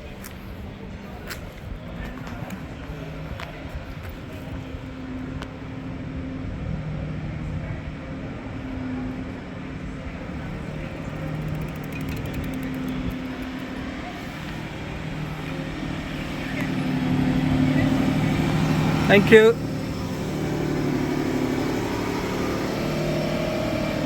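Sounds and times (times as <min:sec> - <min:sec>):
vehicle engines running: 0:00.0 - 0:24.0.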